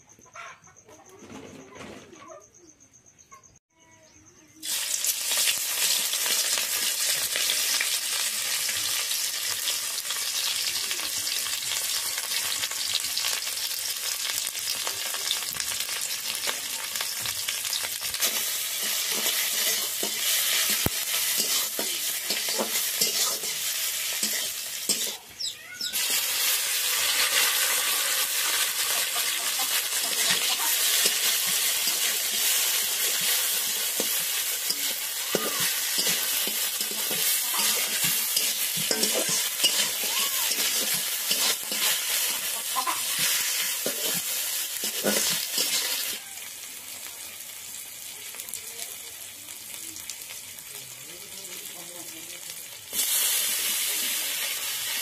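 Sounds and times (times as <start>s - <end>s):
vegetables sizzling in hot oil: 4.6s - 55.0s.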